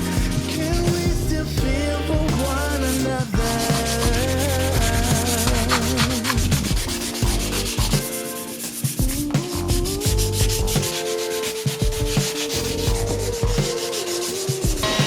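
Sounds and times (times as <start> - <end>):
background music with bass: 0.0 - 11.1, 11.8 - 15.0
wood being sanded: 2.4 - 8.8, 9.5 - 14.6.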